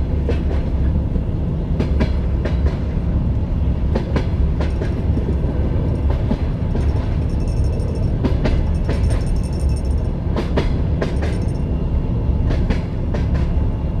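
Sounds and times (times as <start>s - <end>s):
low rumble of moving carriage: 0.0s - 14.0s
train wheels clacking on rail joints: 0.1s - 3.0s, 3.9s - 11.7s, 12.4s - 13.6s
faint high ringing: 5.8s - 10.2s.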